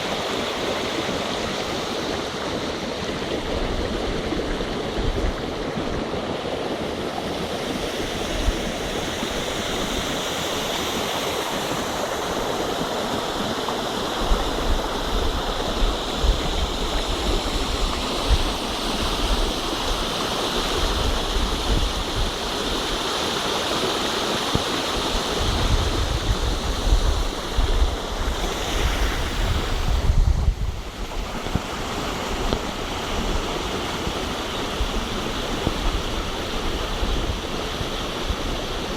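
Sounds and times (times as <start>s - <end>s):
water rushing at beach: 0.0s - 38.9s
wind buffeting microphone: 12.3s - 23.0s, 25.0s - 38.9s.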